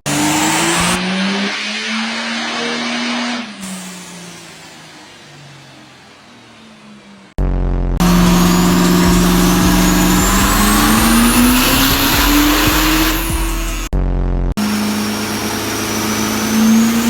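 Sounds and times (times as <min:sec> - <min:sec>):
diesel truck engine at full throttle: 0:00.0 - 0:13.9, 0:14.6 - 0:17.0
high whine: 0:08.0 - 0:13.9.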